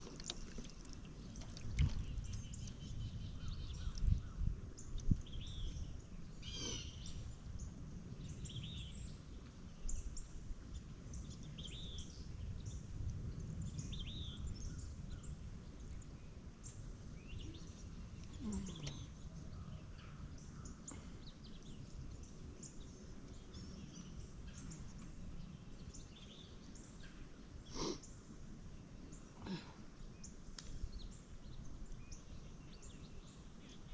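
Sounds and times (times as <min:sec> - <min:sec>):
steady low rumble: 0:00.8 - 0:27.5
birds chirping and calling: 0:06.4 - 0:07.2.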